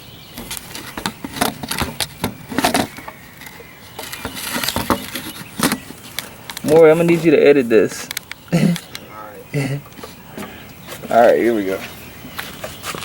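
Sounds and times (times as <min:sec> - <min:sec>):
clicks and knocks of handling: 0:00.4 - 0:07.3, 0:08.0 - 0:09.1.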